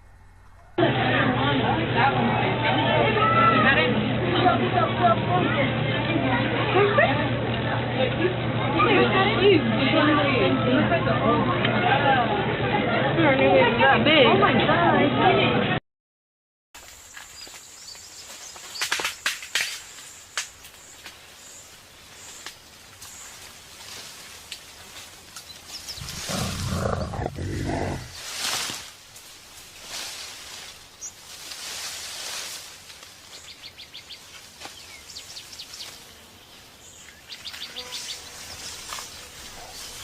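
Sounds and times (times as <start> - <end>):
sharp snaps and cracks: 18.5 - 21.2.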